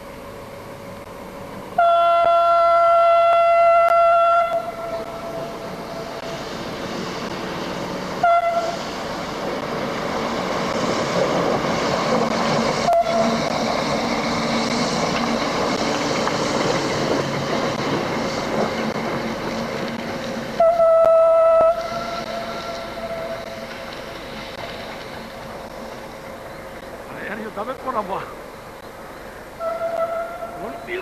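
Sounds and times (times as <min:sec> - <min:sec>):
diesel locomotive rumbling: 0:00.0 - 0:31.0
train horn: 0:01.8 - 0:05.6, 0:08.2 - 0:08.8, 0:12.8 - 0:13.4, 0:20.6 - 0:23.5, 0:29.6 - 0:31.0.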